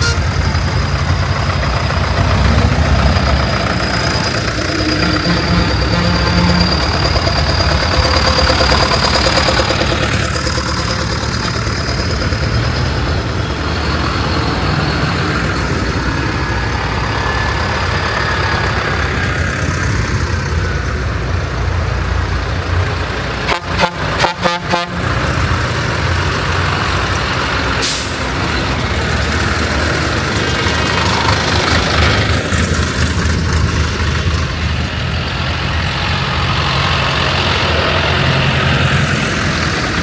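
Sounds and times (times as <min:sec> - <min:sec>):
diesel tractor engines running: 0:00.0 - 0:40.0.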